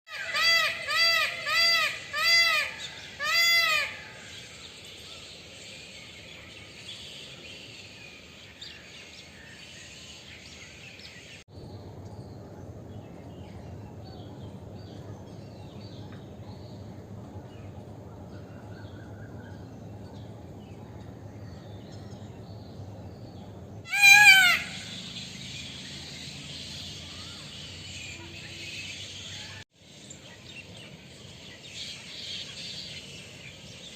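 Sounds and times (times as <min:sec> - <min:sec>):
peacock wailing calls: 0:00.1 - 0:04.6, 0:23.8 - 0:29.6
outdoor background noise: 0:00.1 - 0:33.9.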